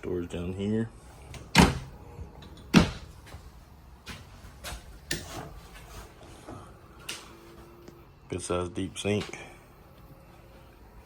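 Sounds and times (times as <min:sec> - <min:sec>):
cabinet door clicks and taps: 0:01.5 - 0:01.9, 0:02.7 - 0:03.0
cabinet doors knocking: 0:02.7 - 0:03.1.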